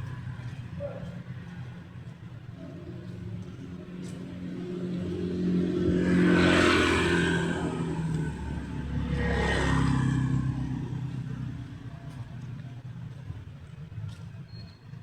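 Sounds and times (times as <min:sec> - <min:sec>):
vehicle passing by: 0:02.9 - 0:12.5.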